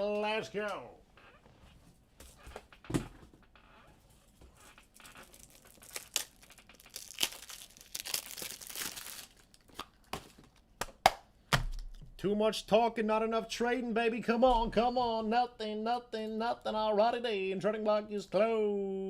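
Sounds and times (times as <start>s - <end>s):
packaging crinkled and torn: 4.8s - 10.7s.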